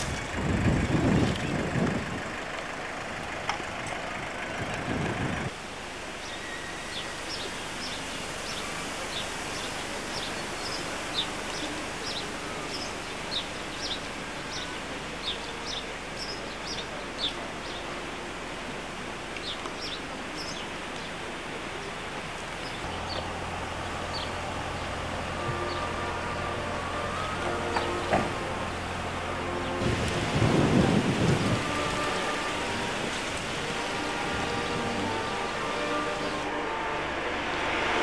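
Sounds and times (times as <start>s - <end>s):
outdoor hiss: 5.5s - 38.0s
small birds chirping: 6.2s - 17.9s, 19.4s - 21.2s.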